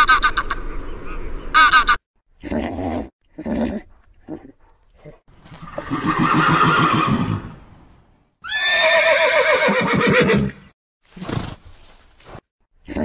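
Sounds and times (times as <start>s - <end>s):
horse neighing: 5.6s - 7.6s, 8.4s - 11.5s.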